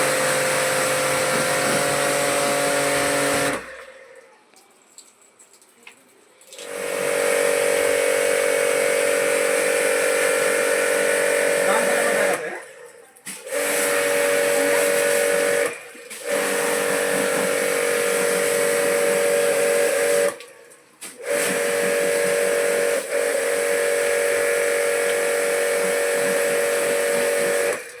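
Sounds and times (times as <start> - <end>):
spray gun motor hum: 0.0 - 4.0, 6.6 - 12.5, 13.5 - 20.4, 21.2 - 28.0
water spray hissing: 0.0 - 4.2, 13.2 - 28.0.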